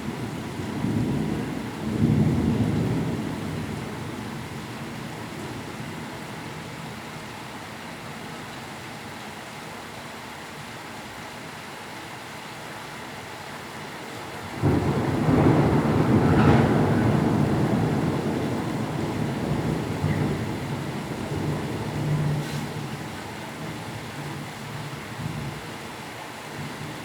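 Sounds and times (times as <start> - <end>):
heavy rain: 0.0 - 27.0
thunder rumble: 14.4 - 23.7.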